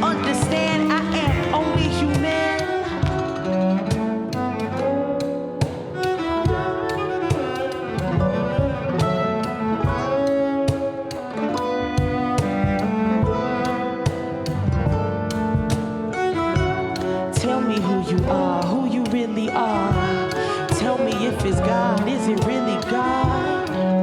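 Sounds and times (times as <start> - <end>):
cello bowing melody: 0.0 - 24.0
plucked guitar and mandolin: 0.0 - 24.0.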